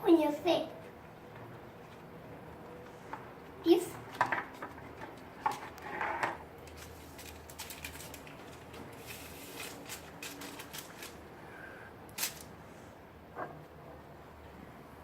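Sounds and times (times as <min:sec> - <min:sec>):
light rustling: 0:06.6 - 0:11.3.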